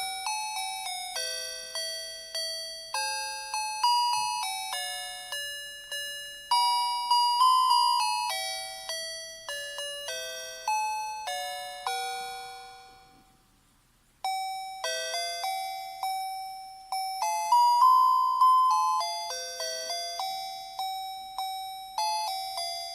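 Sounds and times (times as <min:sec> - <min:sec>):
electronic chime melody: 0:14.3 - 0:22.9.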